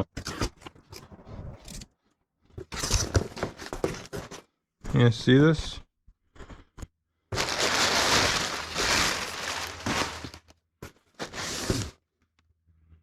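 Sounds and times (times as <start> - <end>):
packaging rustling and crinkling: 7.3 - 10.5, 11.1 - 12.0.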